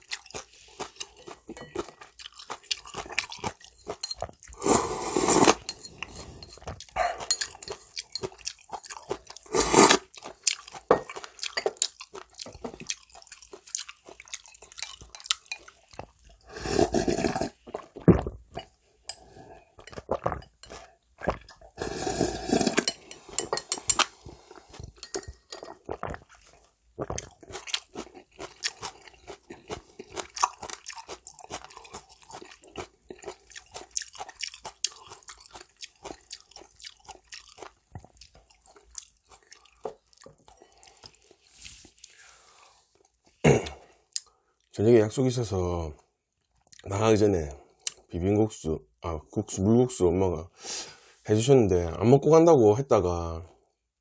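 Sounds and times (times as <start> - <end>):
crunchy chewing: 0.0 - 18.7, 19.8 - 42.3
slurping noodles: 4.5 - 7.3, 9.2 - 10.1, 16.4 - 18.3, 21.2 - 25.0.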